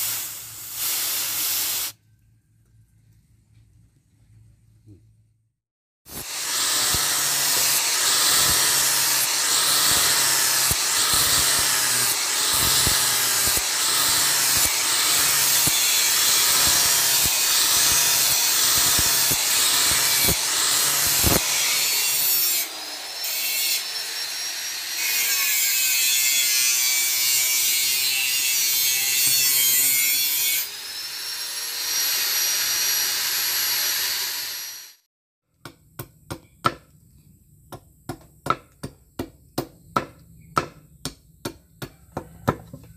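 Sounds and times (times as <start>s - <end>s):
power tool grinding: 6.1s - 35.0s.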